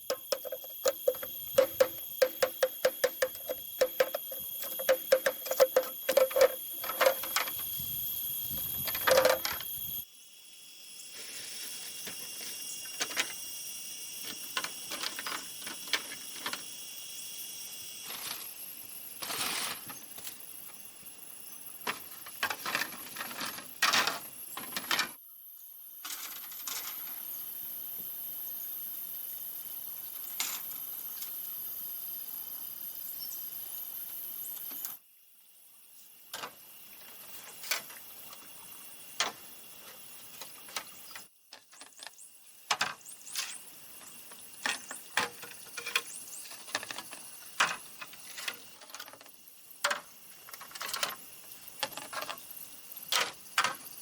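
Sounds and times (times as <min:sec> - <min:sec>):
forest insects buzzing: 0:00.0 - 0:54.0
bamboo being struck: 0:00.1 - 0:07.1.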